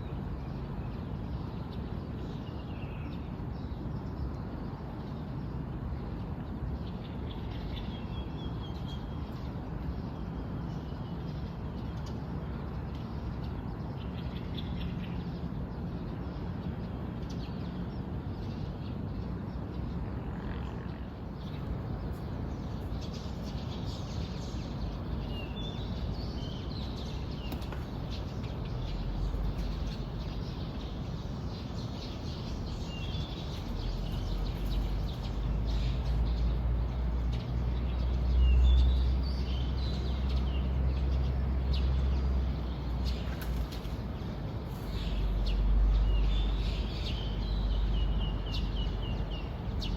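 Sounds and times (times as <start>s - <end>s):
small birds chirping: 20.8s - 49.9s.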